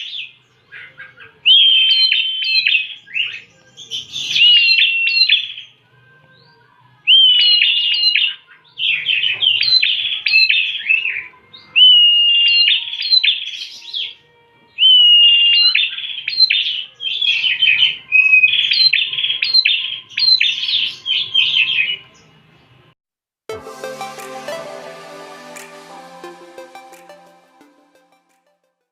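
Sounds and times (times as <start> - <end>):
bird song whistles and chirps: 1.5 - 5.6, 7.1 - 14.2, 14.8 - 21.9.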